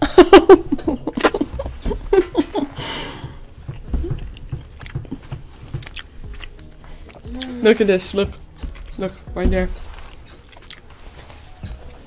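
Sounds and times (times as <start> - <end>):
person chewing: 2.8 - 9.0, 9.8 - 12.0.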